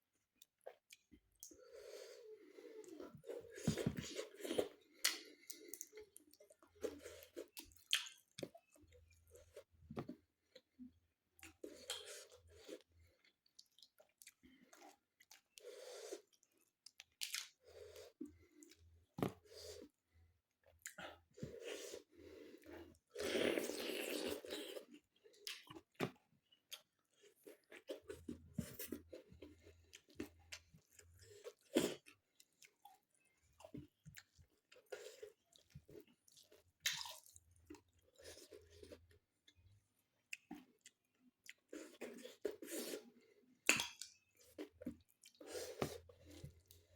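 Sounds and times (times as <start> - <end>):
person chewing crunchy food: 0.7 - 10.6, 20.7 - 39.2.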